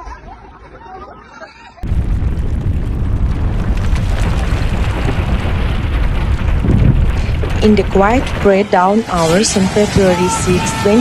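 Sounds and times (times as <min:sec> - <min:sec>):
deep earthquake rumble: 0:01.8 - 0:11.0
rattles: 0:03.5 - 0:10.0.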